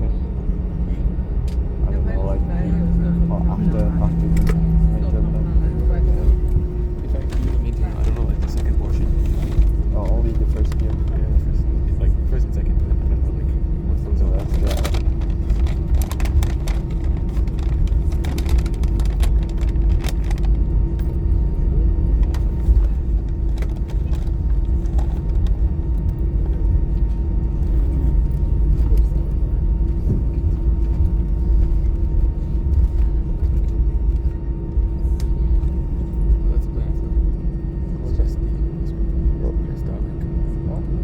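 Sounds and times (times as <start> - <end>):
airplane cabin rumble: 0.0 - 41.0.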